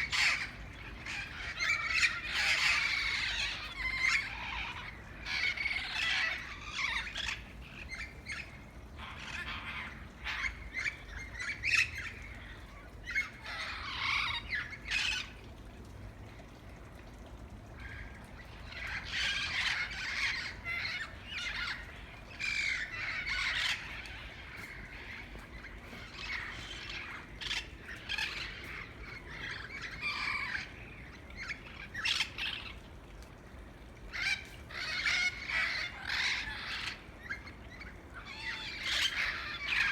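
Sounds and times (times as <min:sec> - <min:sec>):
parrots squawking: 0:00.0 - 0:11.9, 0:18.7 - 0:32.7, 0:34.1 - 0:37.4, 0:38.2 - 0:39.9.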